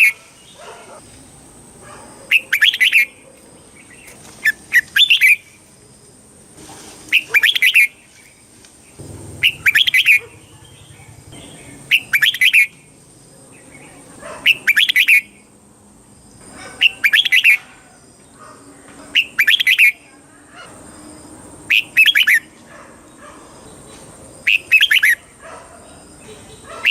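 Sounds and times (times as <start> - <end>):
bird singing warbled phrases: 0.0 - 1.0, 2.2 - 5.7, 7.1 - 15.5, 16.6 - 18.5, 19.1 - 20.7, 21.7 - 22.5, 23.1 - 26.9.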